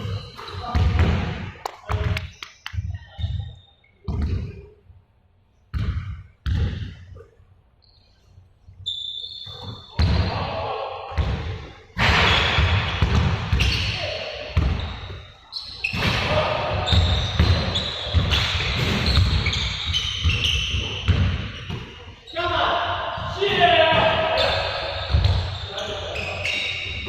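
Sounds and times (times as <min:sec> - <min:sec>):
high squeak: 0:14.8 - 0:16.2, 0:16.8 - 0:21.0, 0:24.4 - 0:27.0.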